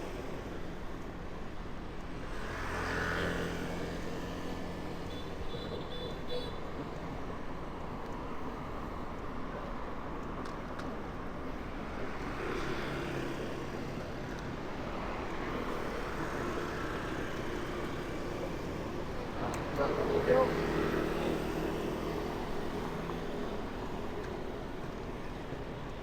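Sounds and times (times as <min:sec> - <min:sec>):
rush of road noise: 0:00.0 - 0:26.0
vehicle engines passing: 0:02.2 - 0:05.5, 0:11.4 - 0:26.0.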